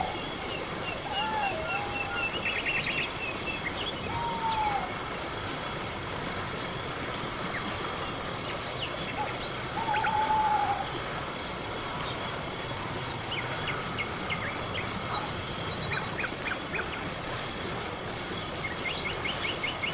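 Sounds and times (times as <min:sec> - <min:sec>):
cricket chirping: 0:00.0 - 0:19.9.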